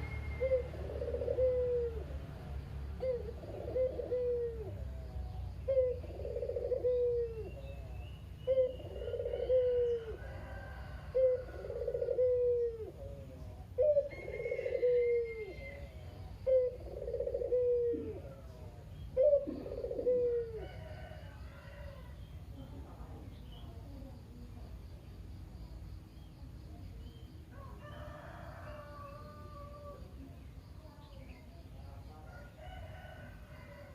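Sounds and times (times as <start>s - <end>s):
dove cooing: 0.0s - 22.2s.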